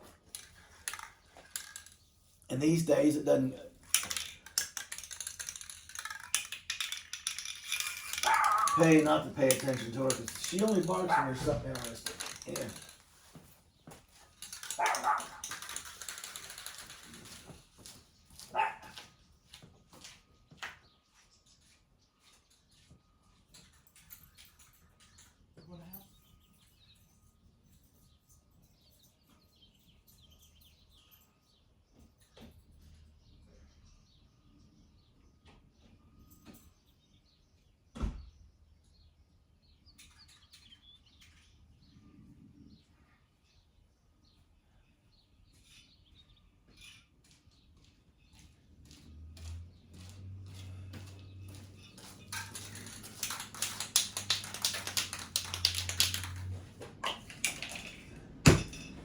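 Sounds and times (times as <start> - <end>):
light rattling and clicks: 0.0 - 19.0, 49.4 - 59.0
dog barking: 8.2 - 8.8, 11.0 - 11.4, 14.8 - 15.4, 18.5 - 19.0.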